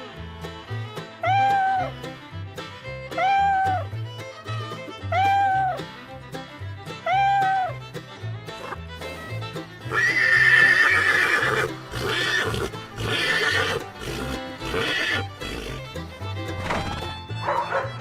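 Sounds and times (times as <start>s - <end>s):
background music with bass line: 0.0s - 10.8s, 11.5s - 18.0s
horse neighing: 9.8s - 16.0s.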